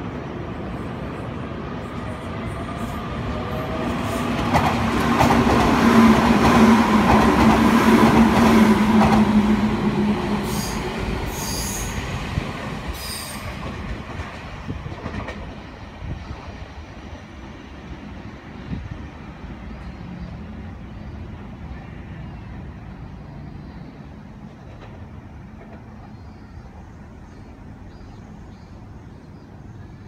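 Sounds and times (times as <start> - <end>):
electric train passing: 0.0 - 21.8.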